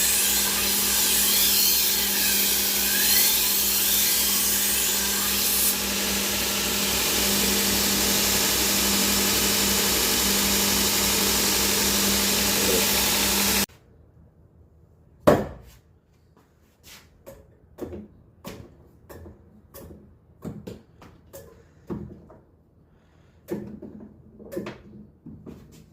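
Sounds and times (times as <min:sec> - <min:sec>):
knife-sharpening grinder running: 0:00.0 - 0:13.7.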